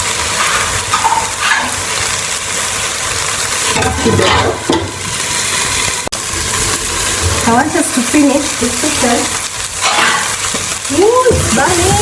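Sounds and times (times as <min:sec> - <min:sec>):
food sizzling in a frying pan: 0:00.0 - 0:12.0
spoon scraping a pan: 0:00.3 - 0:01.9, 0:09.8 - 0:10.7.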